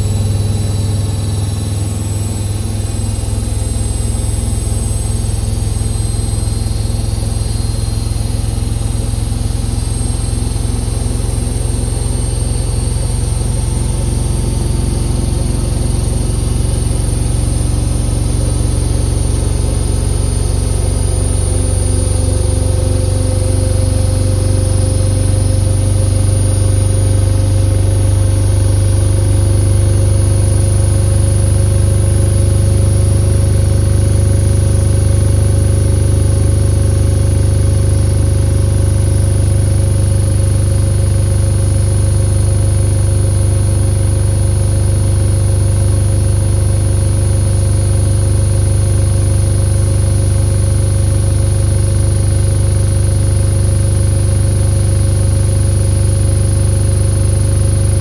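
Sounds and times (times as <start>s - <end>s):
washing machine spinning: 0.0s - 58.0s.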